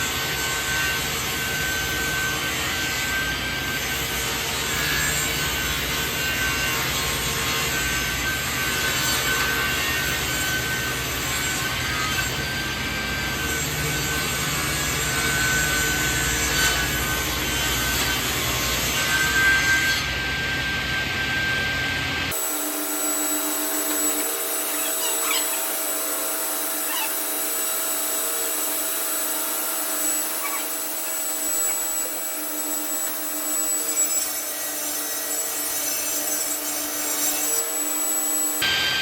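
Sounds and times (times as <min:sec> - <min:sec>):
power saw cutting wood: 0:00.0 - 0:39.0
thin high whine: 0:22.3 - 0:34.1.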